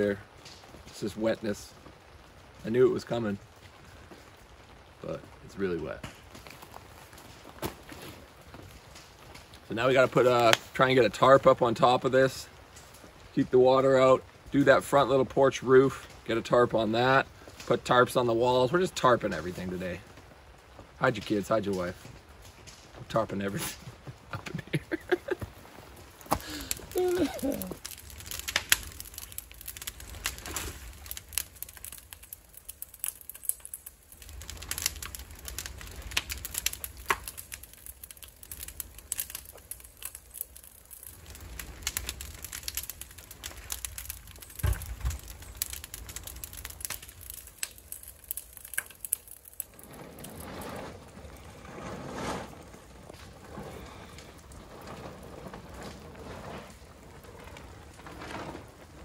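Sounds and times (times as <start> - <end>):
rain falling: 0.0 - 59.0
sharp crackles and pops: 0.0 - 59.0
low thud: 44.6 - 45.2.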